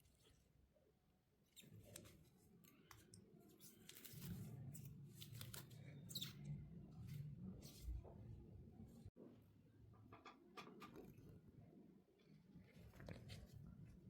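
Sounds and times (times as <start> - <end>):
faint clicks and handling noises: 1.6 - 7.2.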